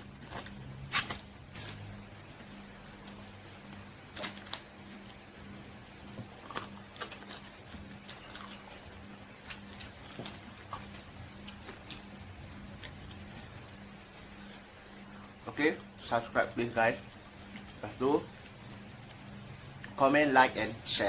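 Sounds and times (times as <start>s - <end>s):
steady low hum: 0.0s - 21.0s
person chewing food: 6.0s - 15.9s.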